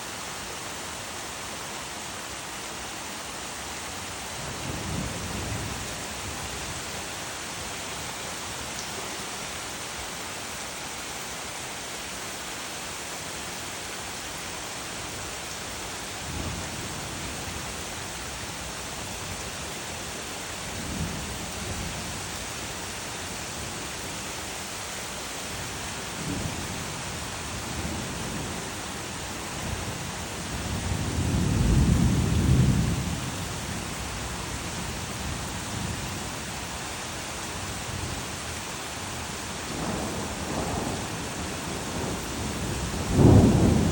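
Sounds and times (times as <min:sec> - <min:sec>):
rain hissing: 0:00.0 - 0:43.9
thunder rumbles: 0:29.6 - 0:33.4, 0:39.7 - 0:43.9.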